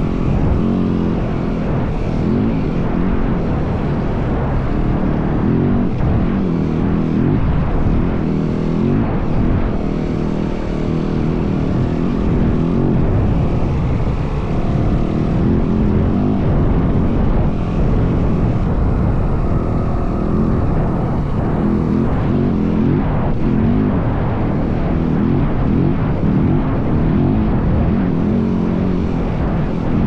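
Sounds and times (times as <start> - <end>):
dirt bike engine revving: 0.0 - 30.0
wind buffeting: 5.7 - 24.7.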